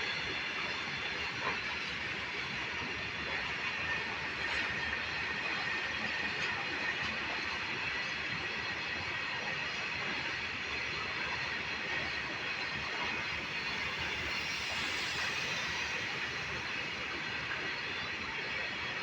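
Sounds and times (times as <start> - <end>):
train wheels on rails: 0.0 - 19.0.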